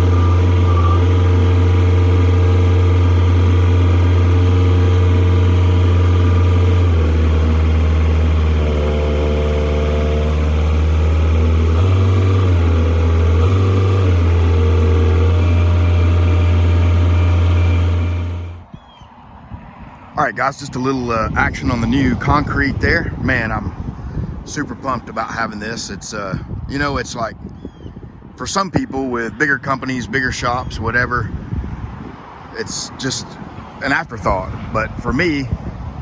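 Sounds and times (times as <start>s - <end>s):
large engine running under load: 0.0s - 18.7s.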